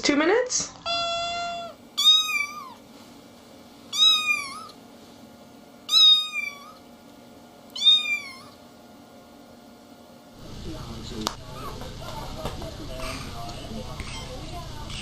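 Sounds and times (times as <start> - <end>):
cat meowing: 0.8 - 2.8, 3.9 - 4.8, 5.9 - 6.8, 7.8 - 8.6.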